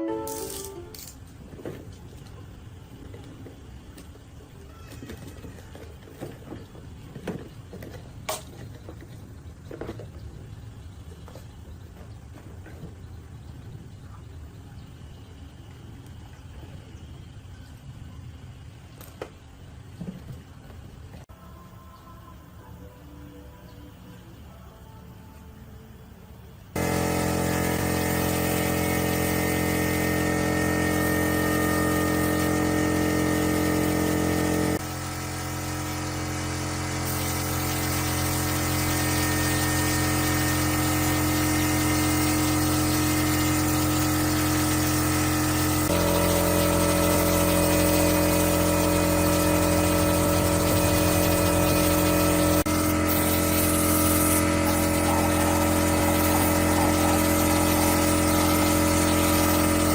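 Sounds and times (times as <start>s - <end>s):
air compressor running: 0.1s - 10.0s, 26.7s - 59.9s.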